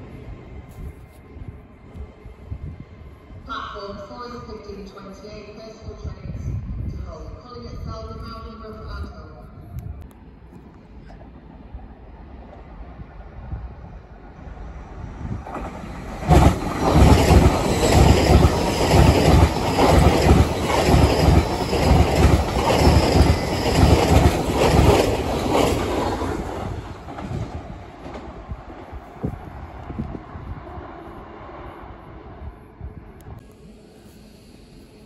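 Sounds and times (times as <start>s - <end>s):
train wheels clattering over rails: 15.4s - 28.8s.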